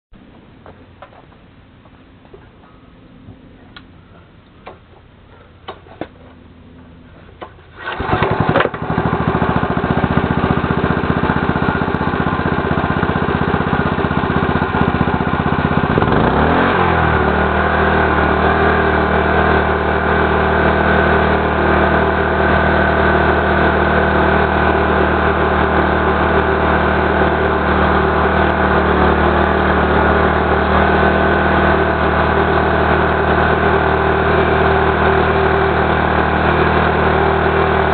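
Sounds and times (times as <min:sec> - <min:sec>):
small petrol engine running: 0:07.7 - 0:37.9.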